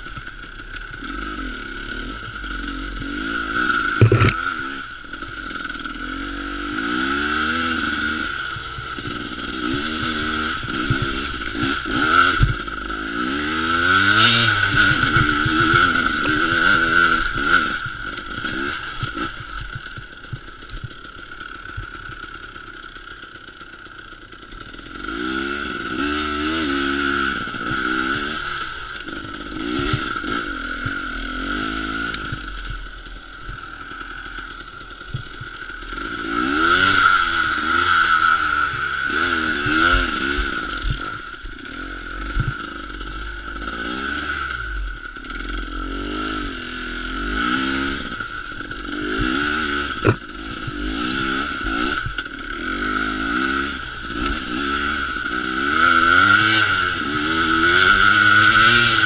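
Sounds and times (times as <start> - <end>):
dirt bike engine revving: 0.0 - 59.0
sharp knock: 50.0 - 50.2.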